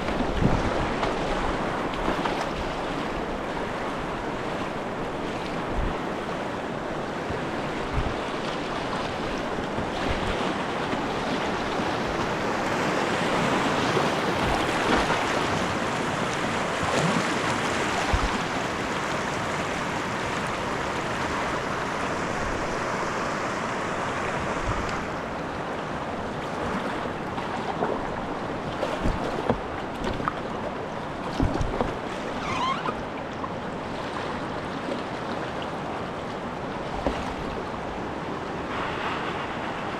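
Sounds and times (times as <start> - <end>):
whitewater rushing: 0.0 - 39.9
low thumps on microphone: 18.1 - 18.4, 31.4 - 32.0.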